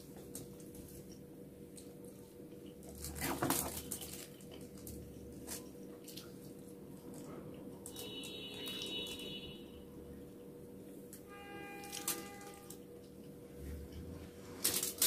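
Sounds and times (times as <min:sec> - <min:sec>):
small clicks and squishes: 0:00.2 - 0:09.3
foil rustle: 0:02.9 - 0:05.7, 0:14.5 - 0:15.0.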